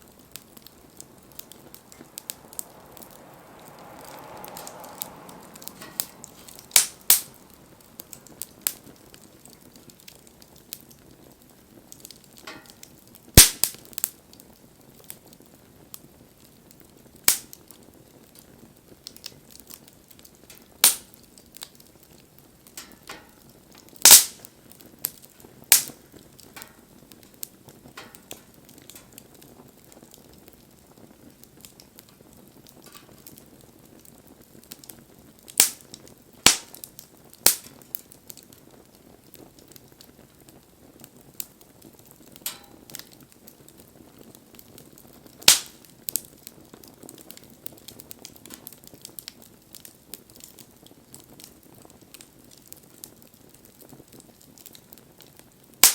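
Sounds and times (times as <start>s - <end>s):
fire crackles and pops: 0.0s - 55.9s
wood fire hissing: 0.0s - 55.9s.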